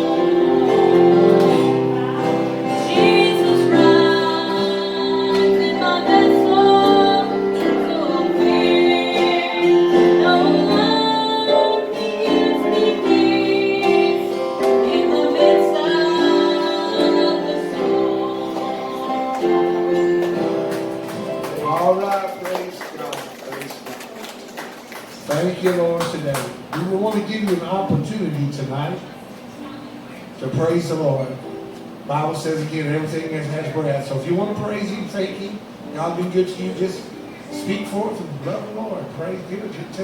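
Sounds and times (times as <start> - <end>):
woman singing gospel song: 0.0 - 21.4
instrumental accompaniment: 0.0 - 23.1.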